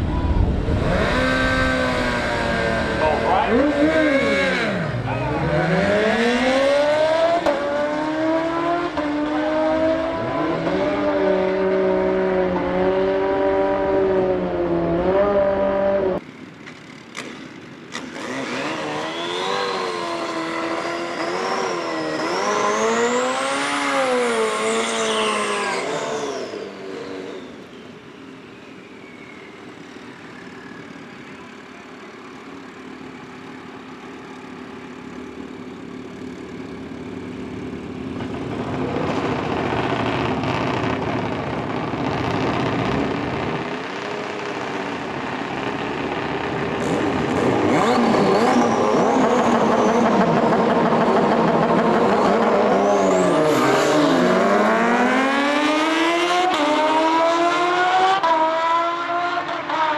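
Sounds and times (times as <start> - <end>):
high whine: 0.0 - 5.5
motorbike engine revving: 0.0 - 59.9.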